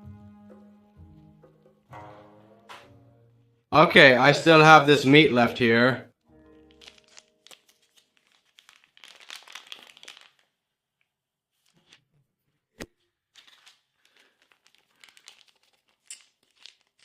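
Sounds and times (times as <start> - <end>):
plastic packaging crinkling: 6.4 - 12.0, 13.3 - 17.0.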